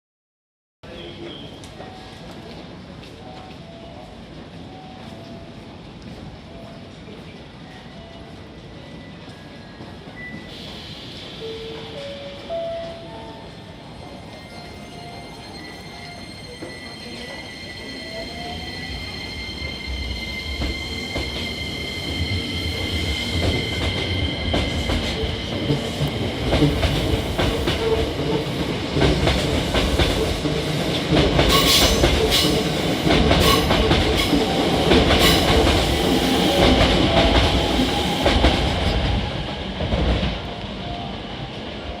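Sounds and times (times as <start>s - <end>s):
train rumble: 15.5s - 42.0s.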